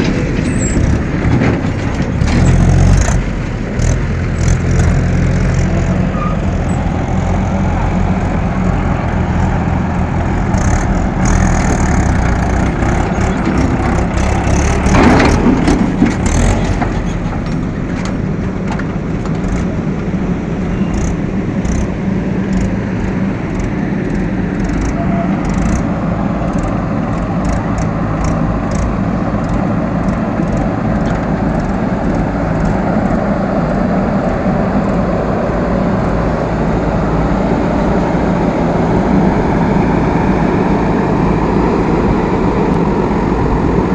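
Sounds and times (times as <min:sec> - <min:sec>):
metal clanks: 0:00.0 - 0:07.3, 0:09.5 - 0:25.9
diesel engines running: 0:00.0 - 0:43.9.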